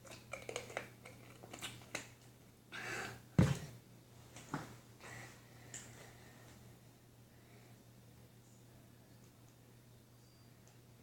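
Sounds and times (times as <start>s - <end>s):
steady low hum: 2.2s - 11.0s.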